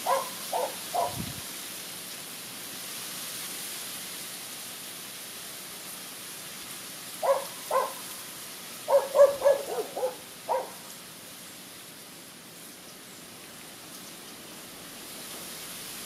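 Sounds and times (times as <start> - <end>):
steady hiss: 0.0 - 16.0
short bird calls: 8.9 - 10.8.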